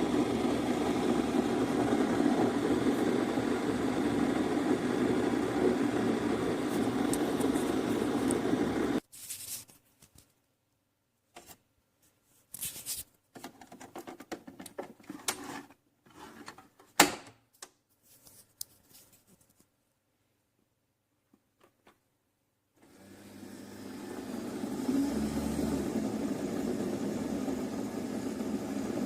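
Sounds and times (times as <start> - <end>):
coffee maker humming: 0.0 - 9.0, 22.8 - 29.0.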